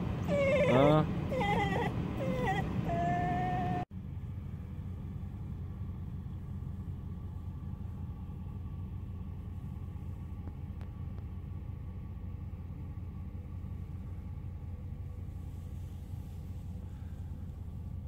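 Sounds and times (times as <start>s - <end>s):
truck engine rumbling: 0.0s - 18.0s.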